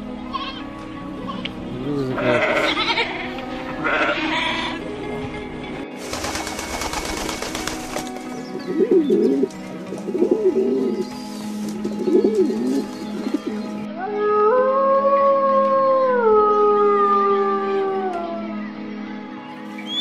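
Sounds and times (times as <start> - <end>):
background music: 0.0 - 20.0
pigeons cooing: 8.2 - 13.9
wolf howling: 13.9 - 18.6.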